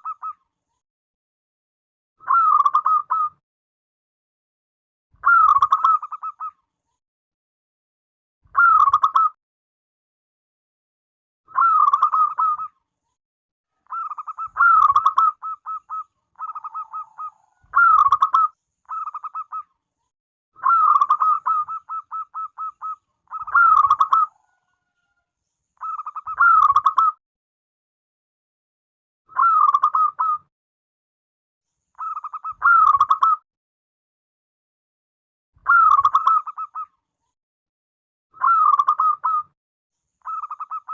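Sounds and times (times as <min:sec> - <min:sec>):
dove cooing: 0:13.8 - 0:19.6, 0:20.6 - 0:25.1.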